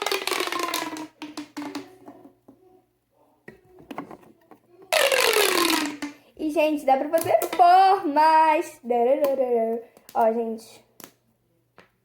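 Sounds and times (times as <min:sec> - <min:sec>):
pop tube falling buzz: 0:00.0 - 0:01.9, 0:04.9 - 0:06.2
plastic tube clicks and rattles: 0:00.0 - 0:02.3, 0:03.8 - 0:06.2, 0:07.2 - 0:07.8.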